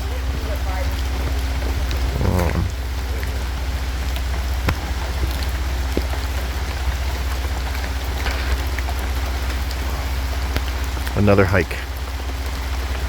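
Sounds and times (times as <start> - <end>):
rain pattering in a forest: 0.0 - 13.0
raindrops ticking: 0.0 - 13.0.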